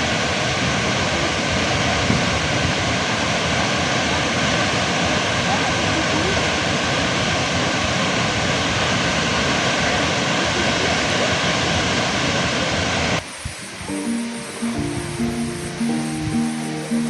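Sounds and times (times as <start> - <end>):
waterfall roaring: 0.0 - 17.0
acoustic guitar music: 13.3 - 17.0.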